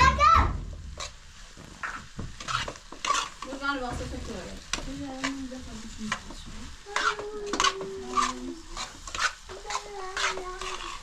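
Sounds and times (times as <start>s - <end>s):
utensils clinking against dishes: 6.1s - 11.0s.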